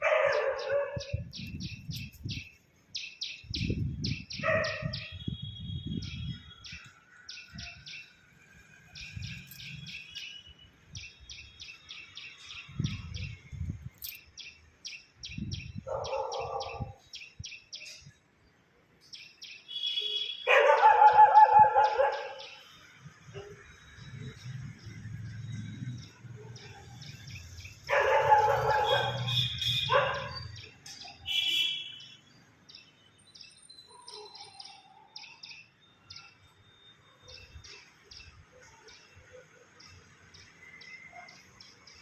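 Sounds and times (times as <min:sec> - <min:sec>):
small birds chirping: 0:00.1 - 0:08.2, 0:08.9 - 0:18.2.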